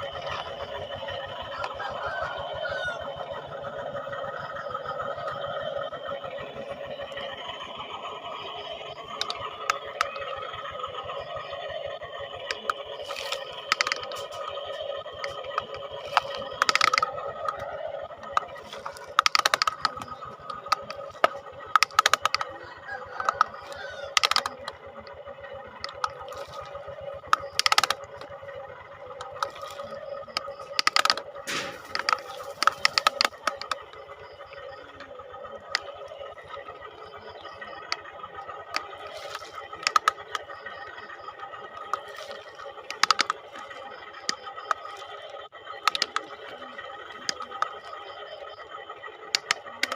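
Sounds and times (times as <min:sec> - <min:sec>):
toy electric motors whining: 0:00.0 - 0:49.9
sharp clacks and knocks: 0:18.2 - 0:22.6.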